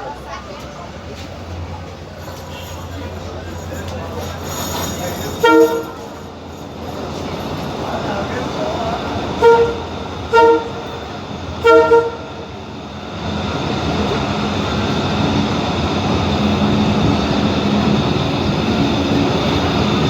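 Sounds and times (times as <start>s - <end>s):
moving train rumble: 0.0s - 20.0s
train horn toots: 5.4s - 6.2s, 9.3s - 11.0s, 11.6s - 12.5s.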